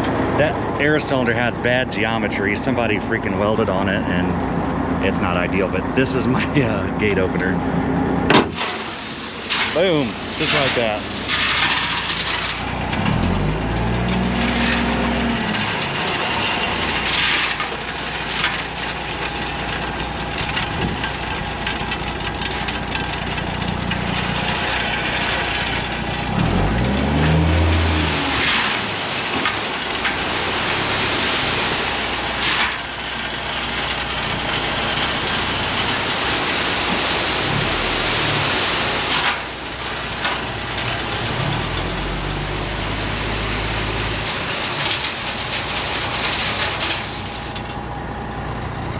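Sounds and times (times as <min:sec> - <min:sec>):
diesel truck engine revving: 0:00.0 - 0:48.9
rock sliding out with hiss: 0:08.5 - 0:12.7.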